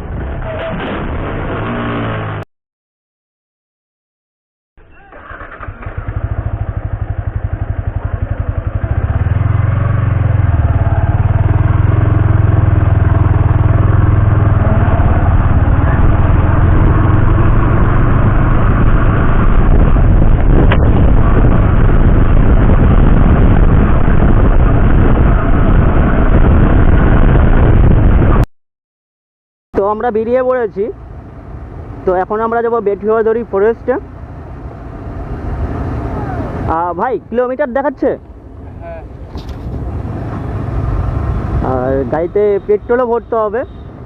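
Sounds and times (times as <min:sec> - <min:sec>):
motorcycle engine running: 0:05.2 - 0:28.3.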